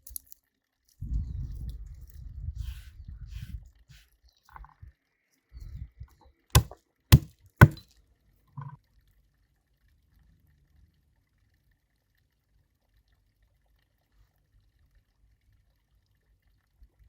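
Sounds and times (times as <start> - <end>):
rough handling noise: 6.6 - 7.8
utensil knocks: 6.6 - 7.8.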